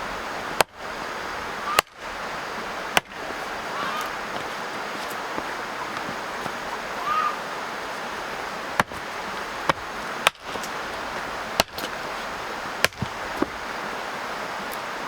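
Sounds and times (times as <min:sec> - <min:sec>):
background hiss: 0:00.0 - 0:15.0
sharp chopping strikes: 0:09.7 - 0:10.7, 0:11.6 - 0:11.9, 0:12.8 - 0:13.2.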